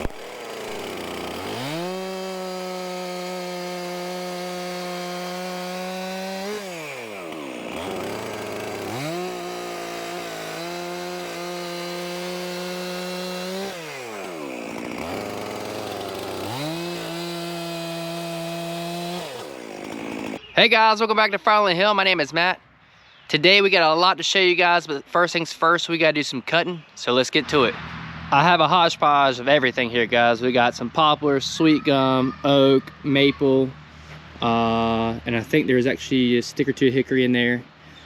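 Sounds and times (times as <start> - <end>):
chainsaw cutting logs: 0.0 - 20.4.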